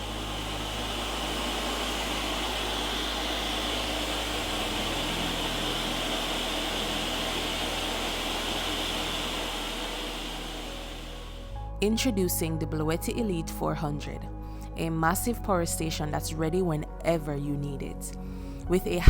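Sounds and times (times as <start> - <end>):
blender running: 0.0 - 11.6.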